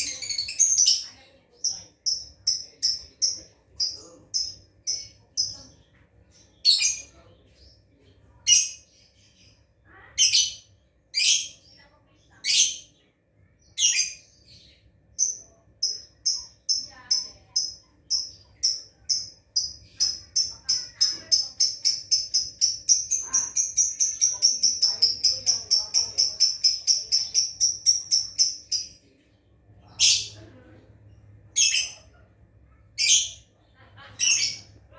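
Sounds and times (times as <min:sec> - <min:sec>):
lovebird chattering: 0:00.0 - 0:05.9, 0:15.1 - 0:29.0, 0:31.6 - 0:32.1, 0:33.0 - 0:34.8.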